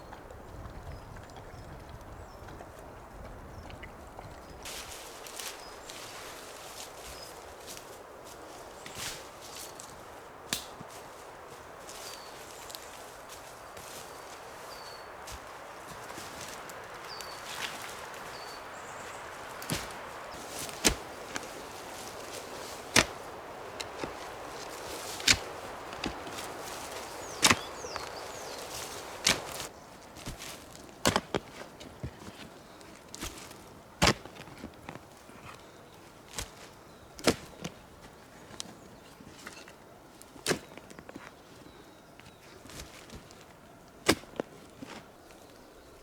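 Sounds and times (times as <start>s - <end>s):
axe chopping wood: 19.6s - 29.7s, 31.0s - 31.6s, 34.0s - 34.4s, 44.0s - 44.5s.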